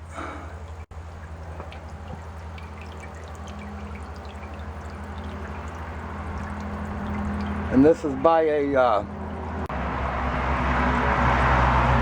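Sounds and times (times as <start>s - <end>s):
fountain water splashing and trickling: 0.0s - 9.4s
low steady hum: 0.0s - 9.7s
water dripping: 0.1s - 8.3s.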